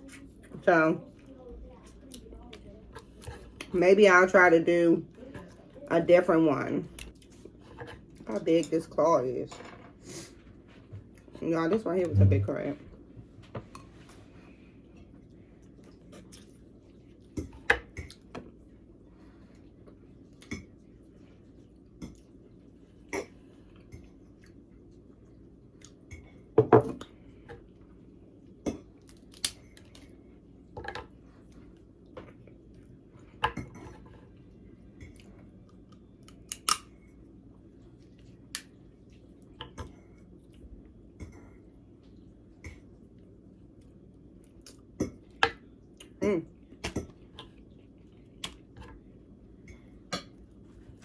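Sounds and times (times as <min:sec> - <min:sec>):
chewing: 0:14.9 - 0:18.3.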